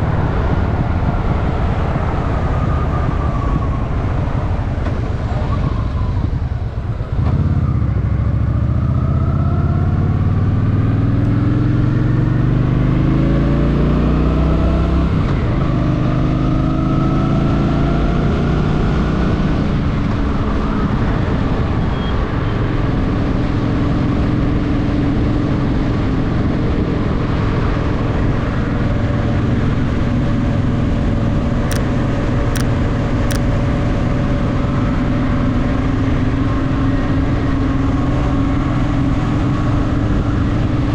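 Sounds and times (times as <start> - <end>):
motorcycle engine accelerating: 0.0 - 20.8.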